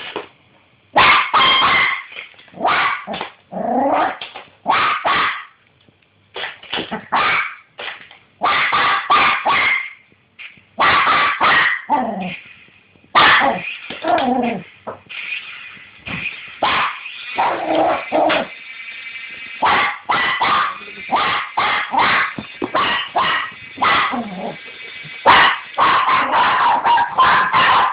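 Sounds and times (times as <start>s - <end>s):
dog barking: 1.0s - 3.2s, 4.7s - 5.5s, 7.0s - 7.6s, 8.4s - 10.0s, 10.8s - 12.0s, 13.2s - 13.6s, 16.6s - 18.0s, 19.6s - 24.4s, 25.3s - 27.9s
dog yelping: 25.3s - 27.9s.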